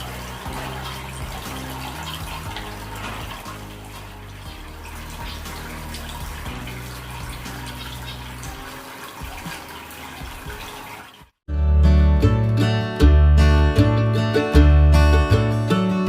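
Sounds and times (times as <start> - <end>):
faint background music: 0.0 - 11.2
fountain water splashing: 0.0 - 11.3
loud guitar music: 11.5 - 16.0.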